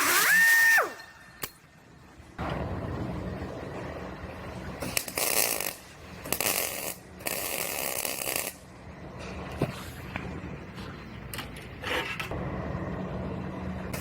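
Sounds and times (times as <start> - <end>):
welding crackling hiss: 4.8 - 8.7.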